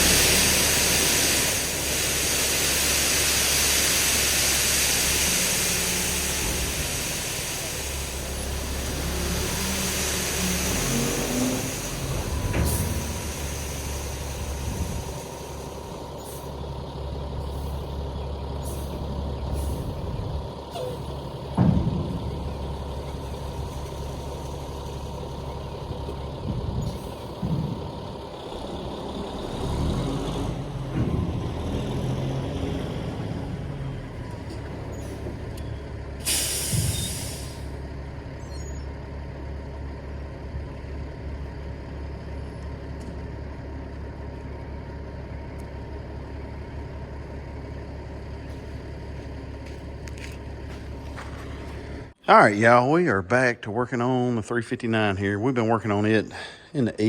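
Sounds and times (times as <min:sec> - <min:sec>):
air brakes hiss: 0:00.0 - 0:16.6, 0:36.2 - 0:37.8
diesel truck engine running: 0:00.0 - 0:53.2
clunks: 0:10.7 - 0:16.7, 0:17.3 - 0:29.8, 0:30.8 - 0:32.2, 0:34.1 - 0:36.0, 0:48.3 - 0:52.2.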